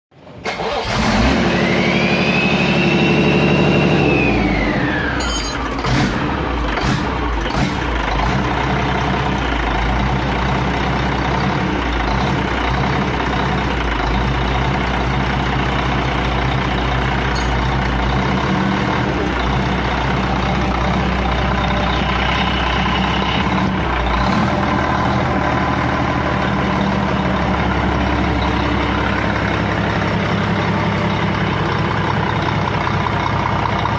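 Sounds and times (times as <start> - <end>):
diesel engine running: 0.2 - 33.9.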